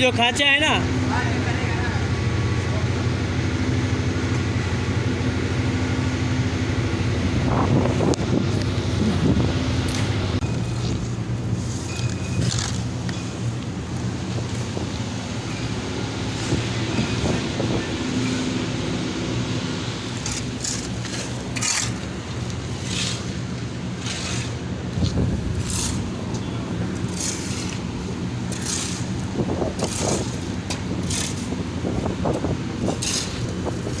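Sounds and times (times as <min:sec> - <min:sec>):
low engine-like hum: 0:00.0 - 0:34.0
short scraping sounds: 0:24.0 - 0:26.5.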